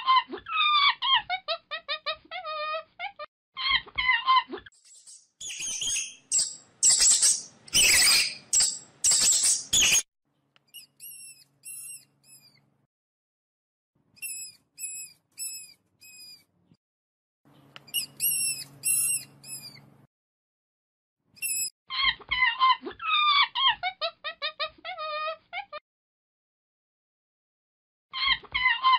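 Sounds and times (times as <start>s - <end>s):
guinea pig squeaking: 0.1s - 10.1s, 10.7s - 12.6s, 14.2s - 16.5s, 17.8s - 19.9s, 21.4s - 25.7s.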